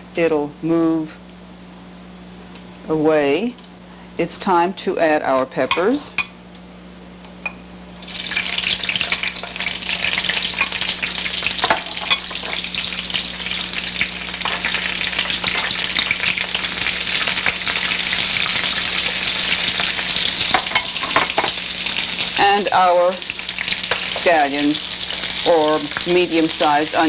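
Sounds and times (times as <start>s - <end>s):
frying sizzle in a skillet: 8.0s - 27.0s.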